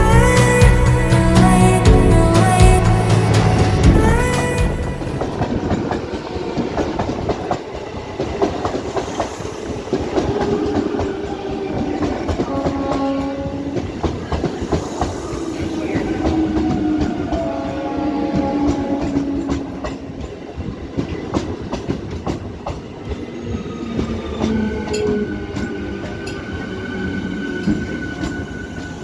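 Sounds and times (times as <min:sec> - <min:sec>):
steady tones: 0:00.0 - 0:08.5
train wheels clattering over rail joints: 0:05.1 - 0:26.6.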